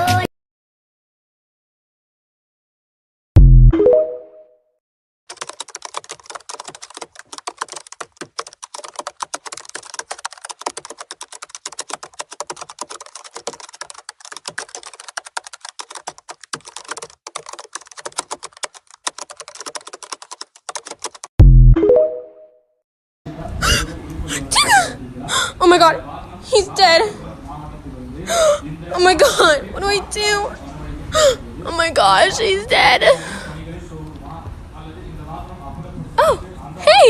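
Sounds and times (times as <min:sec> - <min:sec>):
rapid typing on a keyboard: 0:05.3 - 0:21.3.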